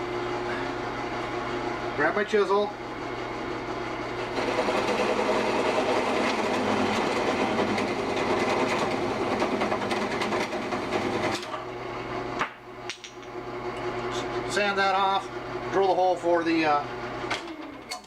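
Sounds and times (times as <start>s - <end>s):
wood lathe hum: 0.0s - 12.3s.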